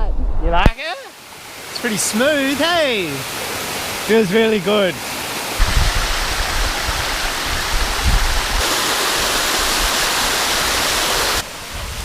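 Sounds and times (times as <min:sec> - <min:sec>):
waterfall rushing: 0:00.7 - 0:12.0.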